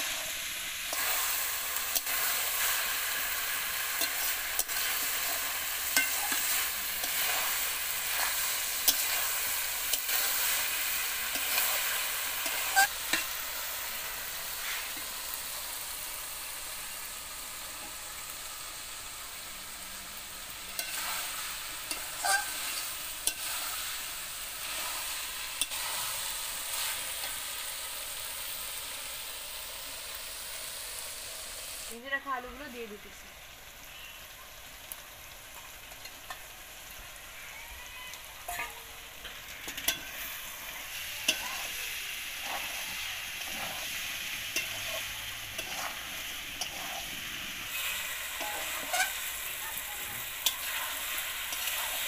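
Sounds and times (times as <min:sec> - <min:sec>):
leaf stalks sizzling in oil: 0:00.0 - 0:52.0
metal spatula scraping and knocking: 0:42.4 - 0:43.9, 0:44.6 - 0:47.2, 0:48.4 - 0:49.2.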